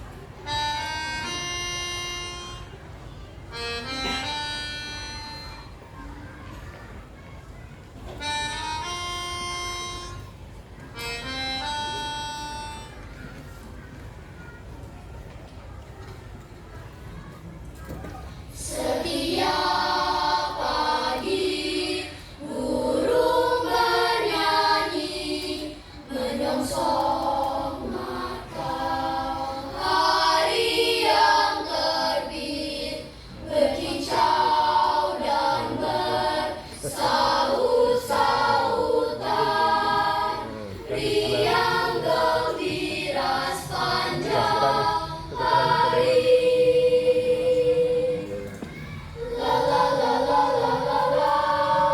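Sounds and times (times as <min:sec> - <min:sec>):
children's choir singing: 0:03.4 - 0:06.0, 0:18.0 - 0:51.9.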